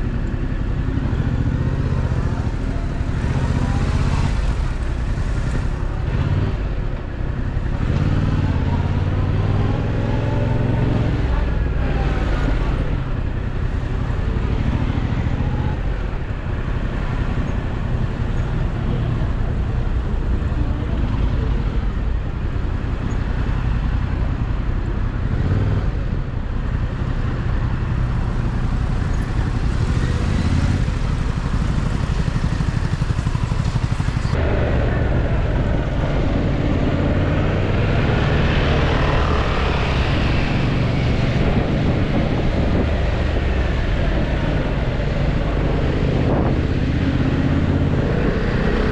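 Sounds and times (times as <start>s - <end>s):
motorcycle engine running: 0.0s - 48.9s
road noise: 0.0s - 48.9s.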